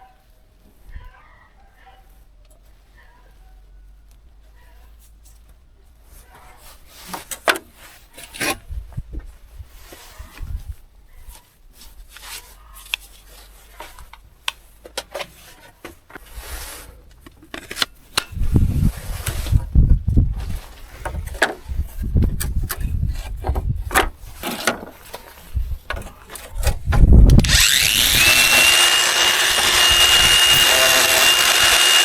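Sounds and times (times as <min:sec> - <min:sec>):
scraping and rubbing on tools: 0:27.4 - 0:32.0.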